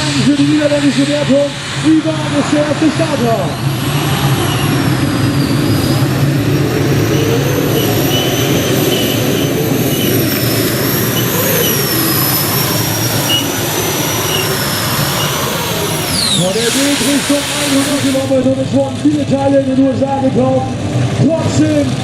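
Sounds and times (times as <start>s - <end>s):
tractor engine running loud: 0.0s - 22.0s
thin high whine: 6.9s - 18.4s.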